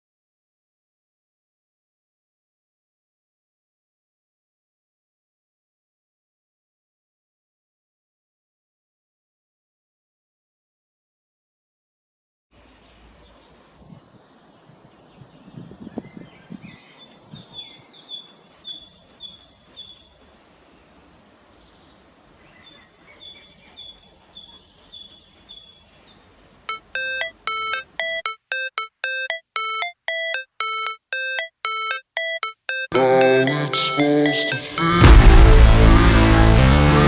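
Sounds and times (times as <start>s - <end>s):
low outdoor hiss: 12.6s - 28.2s
small bird chirping: 15.1s - 20.4s, 21.6s - 34.8s
electronic tone music: 26.7s - 37.0s.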